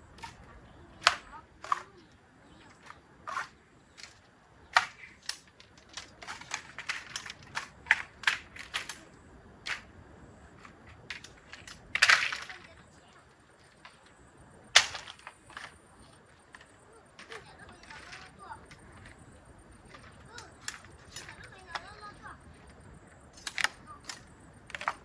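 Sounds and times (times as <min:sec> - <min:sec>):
sharp clicks and snaps: 0:23.3 - 0:25.0.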